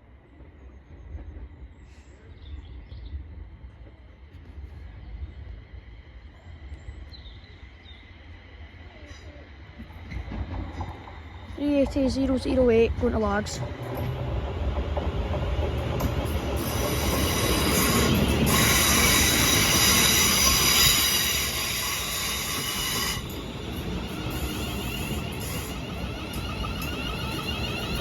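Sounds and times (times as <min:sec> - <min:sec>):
train low rumble: 0:00.0 - 0:28.0
high-pitched metallic squeal: 0:16.6 - 0:28.0.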